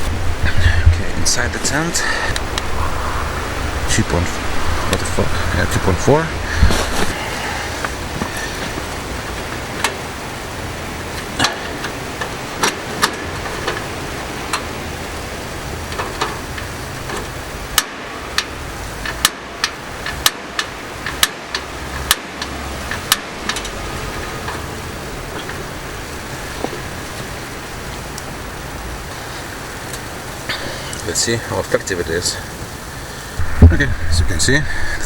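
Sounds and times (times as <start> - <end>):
snowstorm rushing against tent: 0.0 - 35.0
gas heater igniter clicks: 15.9 - 23.8.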